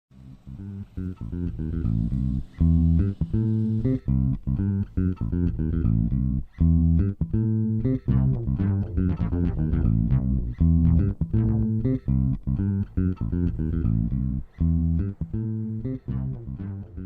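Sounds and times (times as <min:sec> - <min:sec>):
bass guitar line: 0:00.1 - 0:17.0
plucked guitar: 0:00.1 - 0:17.0.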